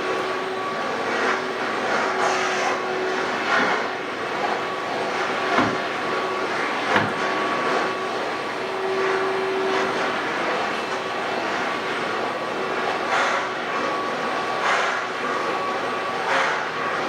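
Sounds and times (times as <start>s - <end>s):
carpet cleaning machine humming: 0.0s - 17.0s.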